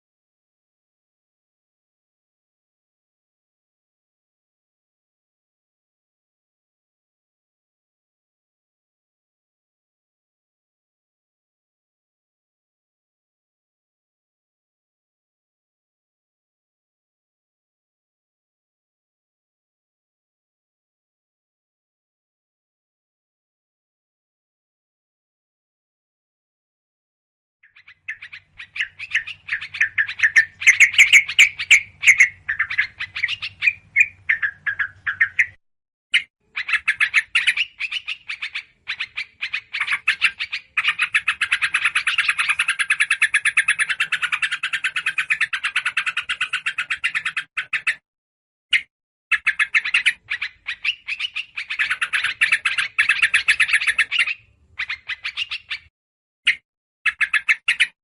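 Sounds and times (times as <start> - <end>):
birds chattering: 27.7 - 35.6, 36.4 - 48.0, 49.3 - 55.9.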